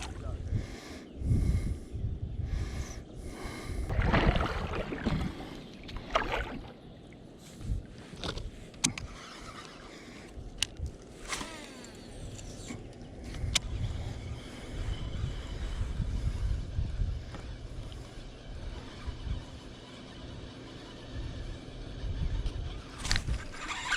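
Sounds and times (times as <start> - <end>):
wind rumble on microphone: 0.0 - 6.7, 12.2 - 23.9
kayak splashing in water: 3.9 - 6.8.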